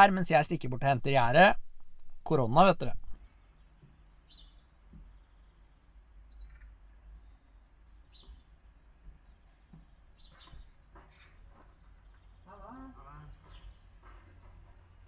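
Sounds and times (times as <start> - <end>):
faint bird chirps: 3.0 - 8.6.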